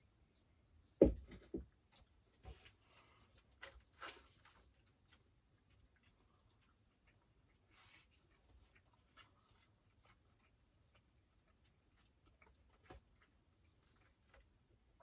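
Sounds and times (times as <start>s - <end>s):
dull thump: 1.0s - 1.6s.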